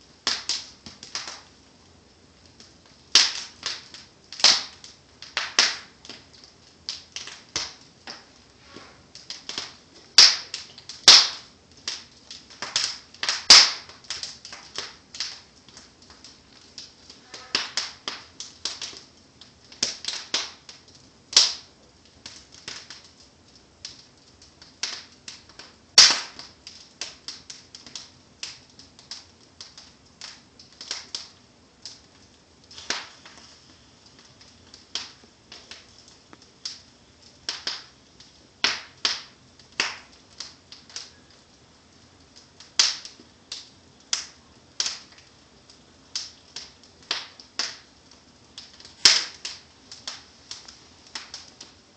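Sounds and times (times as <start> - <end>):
sharp pops from burning logs: 0.0 - 51.9
wood fire crackling: 0.0 - 51.9.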